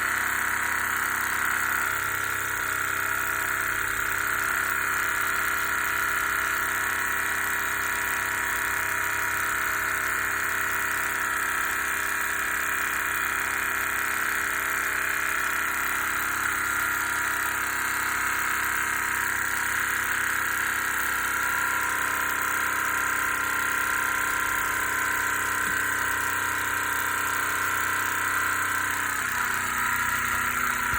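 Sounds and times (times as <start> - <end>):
toy steam engine whirring: 0.0 - 30.9.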